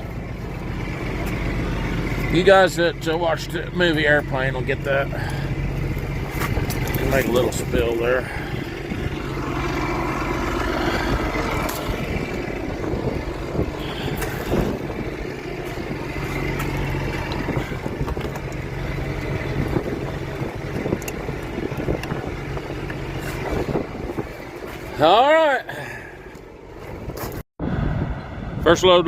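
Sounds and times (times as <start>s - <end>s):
engine humming: 0.0s - 29.0s
wind buffeting microphone: 4.7s - 25.0s, 26.9s - 29.0s.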